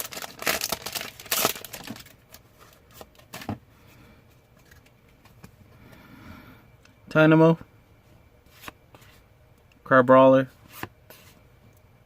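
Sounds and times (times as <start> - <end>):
foil wrapper crinkling: 0.0 - 3.1.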